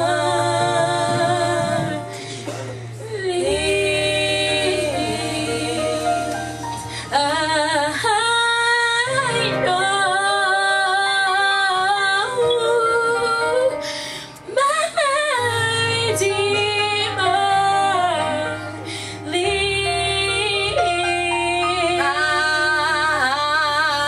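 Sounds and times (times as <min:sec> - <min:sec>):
woman singing: 0:00.0 - 0:02.2, 0:03.0 - 0:24.0
low held accompaniment notes: 0:00.0 - 0:11.8.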